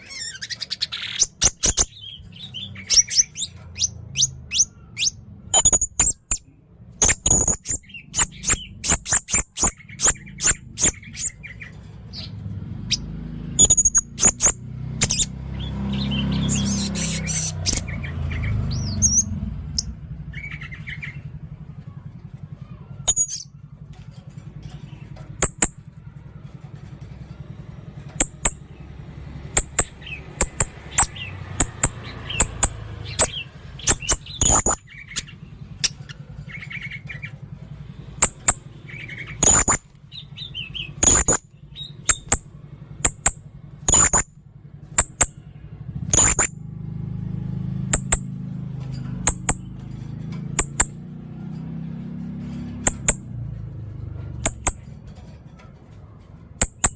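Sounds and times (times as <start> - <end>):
parrot giving sharp high chirps: 0.0 - 11.6, 16.1 - 18.0, 29.5 - 37.3, 38.2 - 42.4, 46.1 - 46.5.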